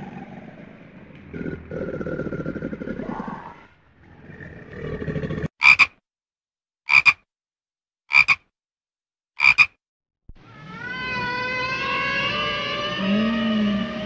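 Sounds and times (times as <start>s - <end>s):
toad croaking: 5.6s - 6.0s, 6.9s - 7.2s, 8.1s - 8.5s, 9.4s - 9.8s.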